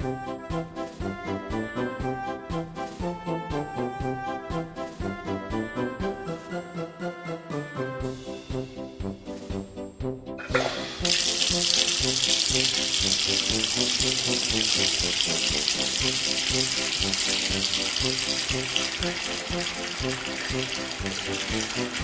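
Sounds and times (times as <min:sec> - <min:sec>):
background music with steady beat: 0:00.0 - 0:22.0
water running from a tap: 0:10.4 - 0:22.0.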